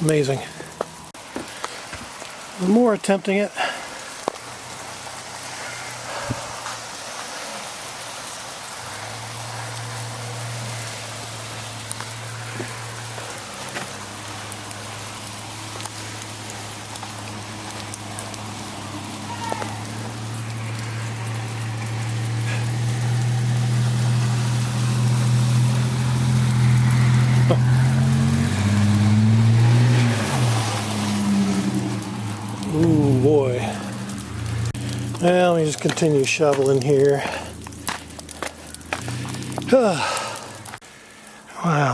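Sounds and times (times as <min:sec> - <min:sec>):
falling sleet hiss: 0:00.0 - 0:41.9
car engine running: 0:08.7 - 0:40.8.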